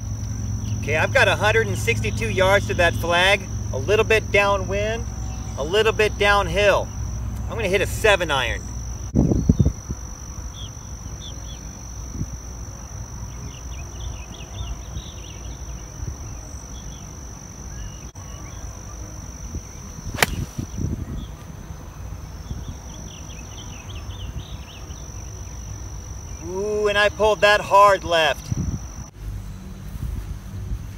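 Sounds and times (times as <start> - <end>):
insects buzzing: 0.0 - 30.9
short insect chirps: 8.3 - 27.2
golf club striking ball: 20.2 - 20.8.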